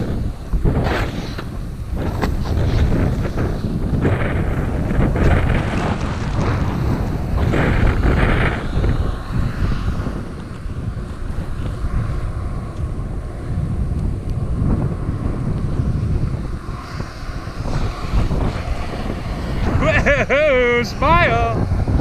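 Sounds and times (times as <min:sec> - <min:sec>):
wind buffeting microphone: 0:00.0 - 0:22.0
edges scraping icy snow: 0:00.7 - 0:03.8.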